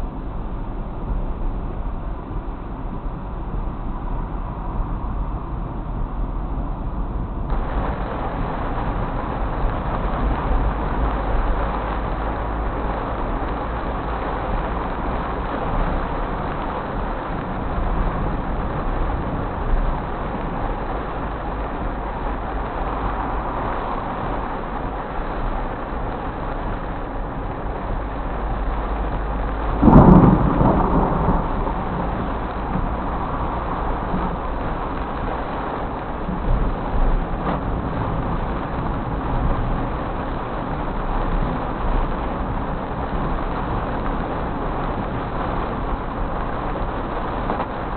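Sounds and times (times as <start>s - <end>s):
heavy rain on a car: 0.0s - 47.9s
tyre and road noise: 0.0s - 47.9s
thunder crack: 7.5s - 11.6s, 29.6s - 35.2s.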